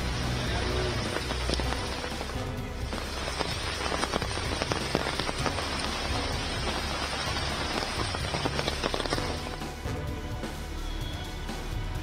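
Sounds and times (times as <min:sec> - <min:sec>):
heavy rain on flooded street: 0:00.0 - 0:09.6.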